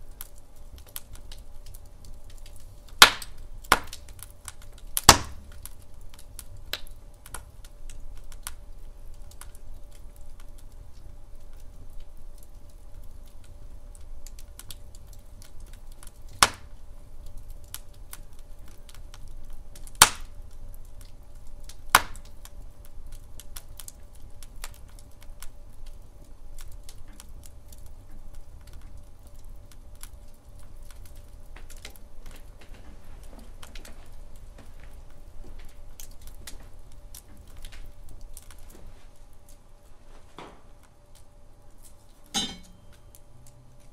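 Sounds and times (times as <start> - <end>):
fireplace fire crackling: 0.0 - 43.9
sharp wood cracks: 2.3 - 7.5, 15.5 - 16.7, 19.8 - 20.4, 21.9 - 22.3.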